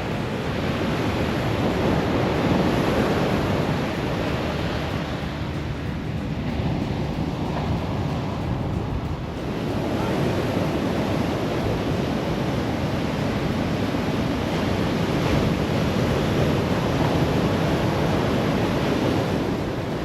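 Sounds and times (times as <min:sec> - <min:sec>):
ocean surf breaking: 0:00.0 - 0:20.0
wind on microphone: 0:00.0 - 0:20.0.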